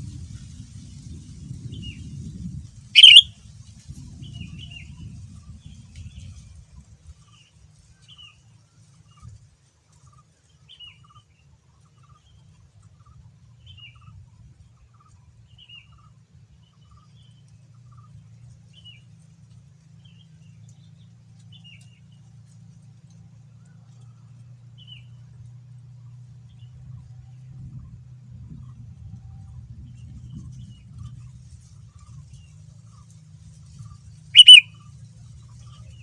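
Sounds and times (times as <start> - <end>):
bird chirping: 3.0 - 3.2, 34.4 - 34.7
soft low bird notes: 3.0 - 3.2, 34.4 - 34.6.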